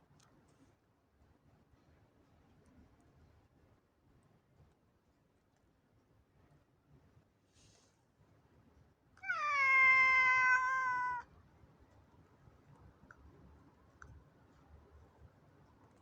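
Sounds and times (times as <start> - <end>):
cat meowing: 9.2 - 11.3.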